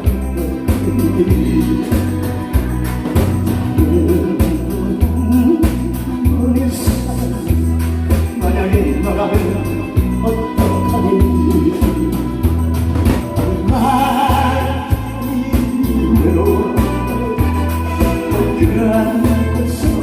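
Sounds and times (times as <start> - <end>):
backing track with pulsing bass beat: 0.0 - 20.0
person singing through a pa: 3.8 - 7.6, 13.6 - 20.0.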